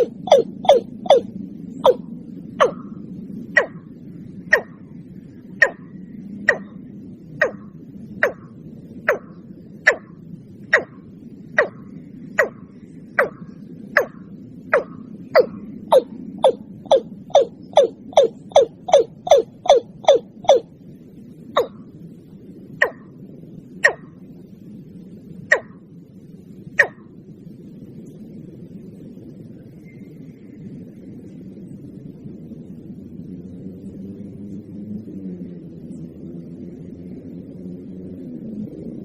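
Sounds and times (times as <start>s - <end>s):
bird calling sharp notes: 0.0s - 2.0s, 2.6s - 2.8s, 3.6s - 3.8s, 4.5s - 4.8s, 5.6s - 5.9s, 6.5s - 6.8s, 7.4s - 8.5s, 9.9s - 11.0s, 11.6s - 11.8s, 12.4s - 12.6s, 14.8s - 20.7s, 23.9s - 24.1s, 25.5s - 25.8s
steady low hum: 0.0s - 39.0s.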